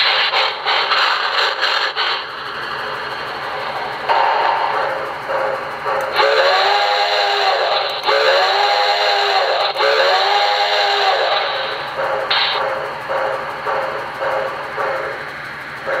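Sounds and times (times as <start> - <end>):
steady steam hiss: 0.0 - 13.1
steam locomotive whistle blasts: 6.2 - 11.8.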